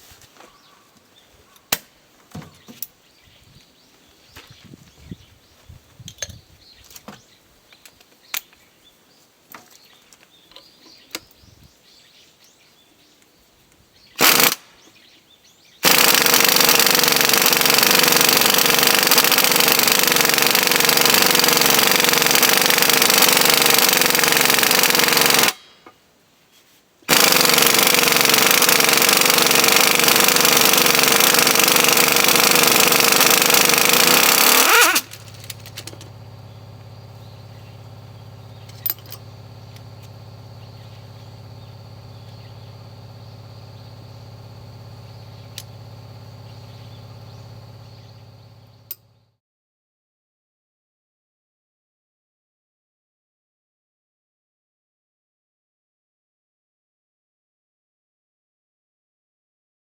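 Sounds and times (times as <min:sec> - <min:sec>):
power tool rapid hammering: 0:14.2 - 0:14.7, 0:15.8 - 0:25.6, 0:27.1 - 0:49.0
metal clinks and knocks: 0:38.6 - 0:40.2.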